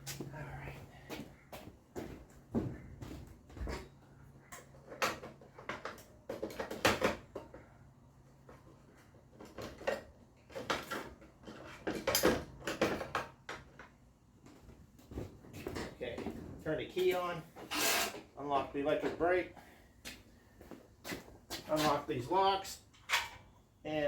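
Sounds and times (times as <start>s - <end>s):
tools and parts clattering: 3.6s - 7.6s, 9.2s - 13.9s, 15.6s - 18.4s, 22.8s - 23.5s.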